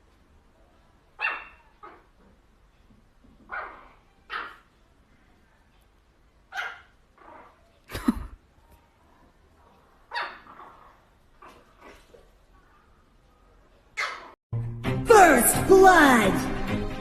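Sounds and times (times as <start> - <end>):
dog barking: 1.2 - 2.1, 3.5 - 4.7, 6.5 - 7.5, 10.1 - 12.0.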